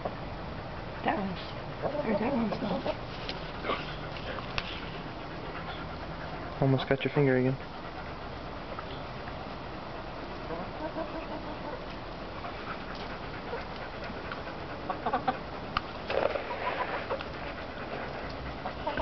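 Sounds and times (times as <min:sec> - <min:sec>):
chickens calling softly: 0:09.9 - 0:19.0.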